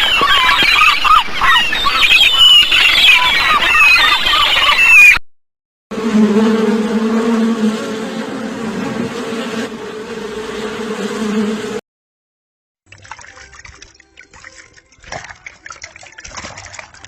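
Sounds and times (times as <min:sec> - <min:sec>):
flying insect buzzing: 0:05.9 - 0:11.8.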